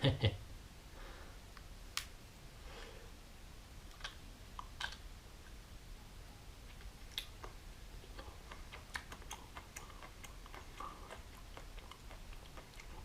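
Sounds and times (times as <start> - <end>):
mouth eating noises: 6.7 - 13.0.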